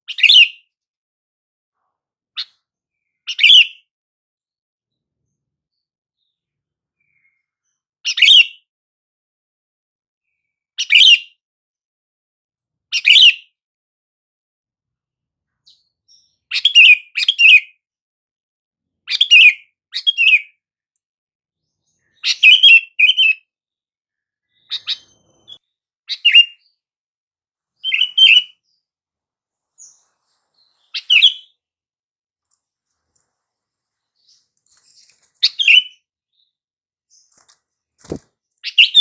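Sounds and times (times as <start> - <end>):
bulbul calling: 34.2 - 36.5, 37.2 - 39.0.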